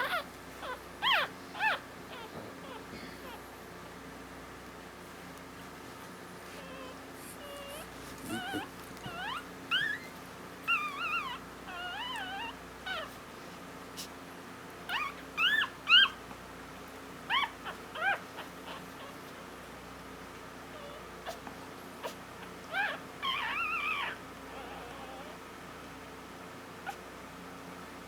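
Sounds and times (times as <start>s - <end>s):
puppy squeaking and whimpering: 0.0s - 3.4s, 6.4s - 13.2s, 14.9s - 16.3s, 17.3s - 19.5s, 20.7s - 25.5s, 26.8s - 27.1s.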